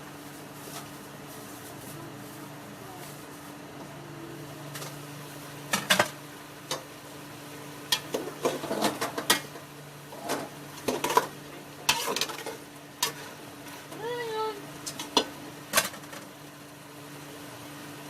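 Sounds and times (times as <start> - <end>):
steady low hum: 0.0 - 18.0
utensil scraping a pot: 11.8 - 13.4.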